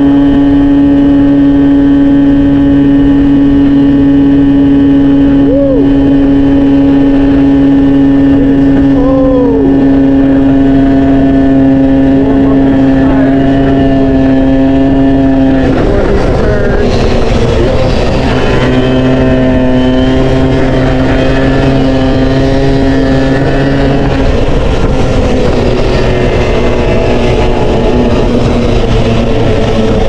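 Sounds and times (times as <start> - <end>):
two-stroke motorcycle engine running: 0.0 - 30.0.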